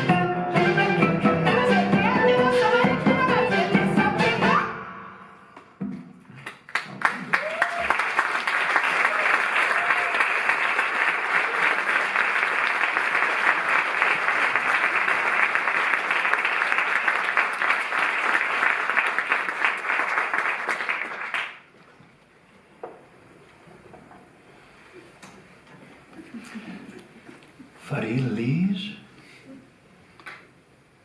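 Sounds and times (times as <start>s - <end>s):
audience applauding: 6.3s - 21.7s.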